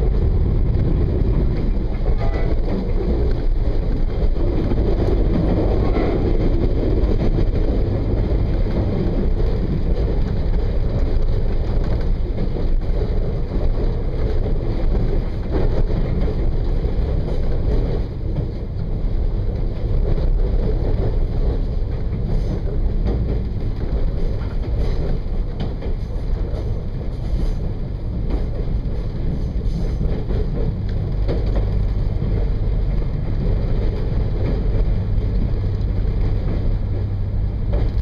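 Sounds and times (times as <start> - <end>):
train wheels rumbling on rails: 0.0 - 38.0.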